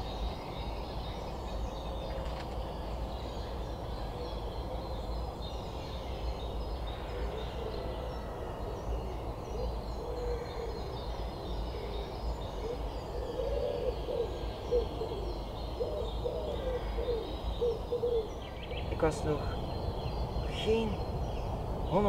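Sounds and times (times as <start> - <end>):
faint higher birdsong: 0.0 - 22.0
bird low repeated calls: 6.8 - 22.0.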